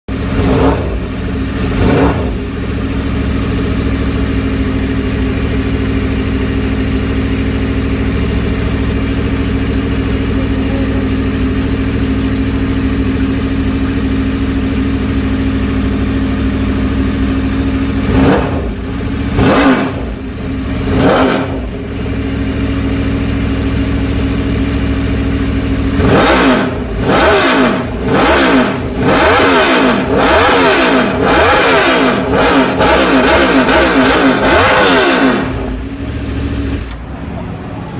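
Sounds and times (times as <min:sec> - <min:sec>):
motorcycle engine idling: 0:00.1 - 0:37.7.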